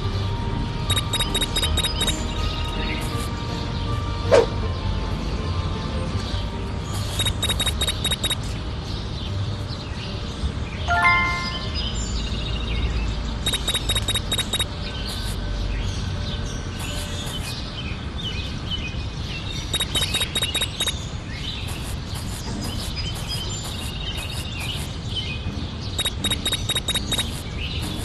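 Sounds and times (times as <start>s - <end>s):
rapid high ticks with chiming tone: 0.9s - 2.2s, 7.1s - 8.4s, 13.5s - 15.4s, 19.8s - 21.0s, 26.0s - 27.4s
birds chirping: 0.9s - 4.6s, 6.2s - 28.0s.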